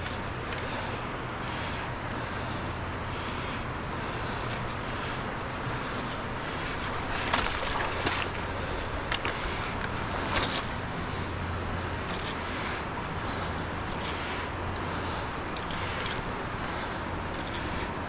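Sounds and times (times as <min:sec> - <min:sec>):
river water rushing: 0:05.5 - 0:18.0.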